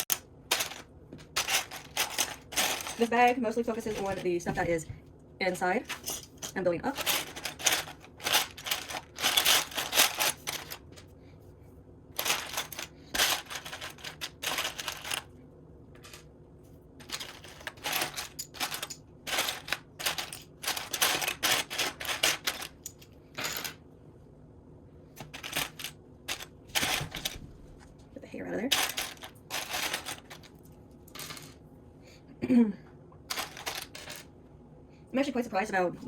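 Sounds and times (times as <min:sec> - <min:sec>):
plastic bricks clattering: 0:00.0 - 0:04.3, 0:05.9 - 0:10.8, 0:12.2 - 0:15.3, 0:17.0 - 0:23.7, 0:25.2 - 0:27.4, 0:28.7 - 0:30.5, 0:33.3 - 0:34.2.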